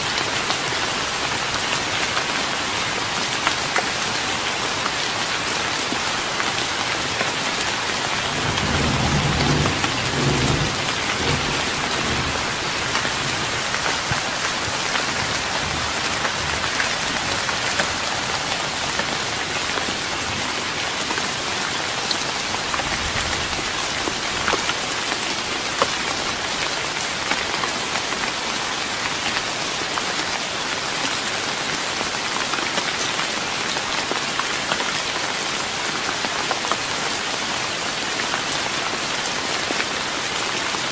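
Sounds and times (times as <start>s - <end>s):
rain on a wooden deck: 0.0s - 40.9s
distant thunder rumble: 8.0s - 18.2s.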